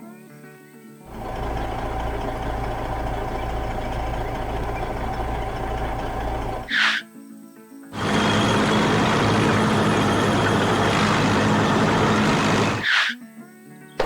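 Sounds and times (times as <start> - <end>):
heavy vehicle engine rumbling: 1.1 - 6.7, 8.0 - 12.9.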